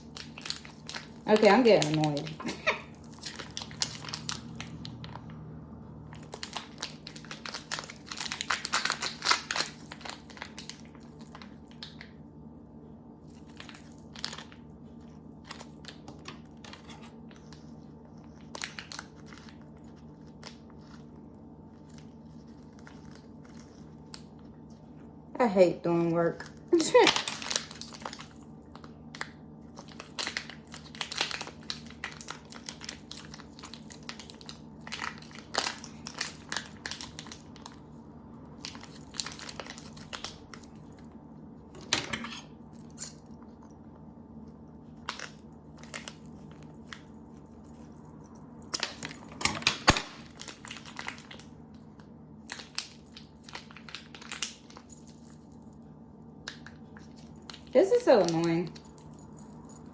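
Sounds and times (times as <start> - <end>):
plastic wrapping crinkling: 0.0 - 5.4, 6.1 - 12.1, 15.3 - 24.9, 26.7 - 38.0, 38.6 - 41.0, 45.0 - 55.6.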